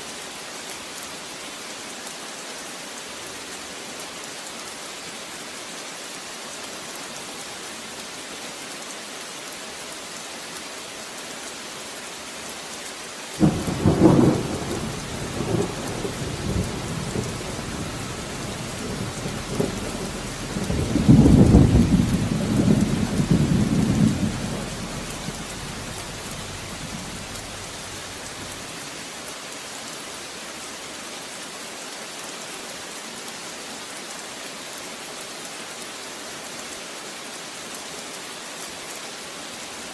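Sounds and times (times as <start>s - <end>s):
rain falling: 0.0s - 39.9s
thunder crack and rumble: 13.4s - 28.6s.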